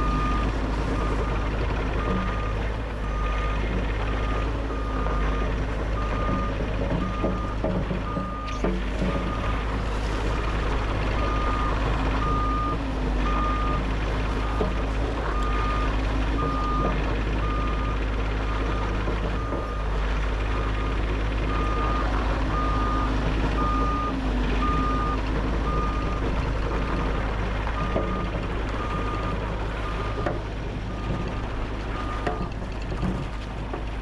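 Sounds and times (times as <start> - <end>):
excavator travel alarm beeping: 0.0 - 9.7, 11.2 - 20.0, 20.6 - 27.1, 27.7 - 33.2
diesel engine drone: 0.0 - 34.0.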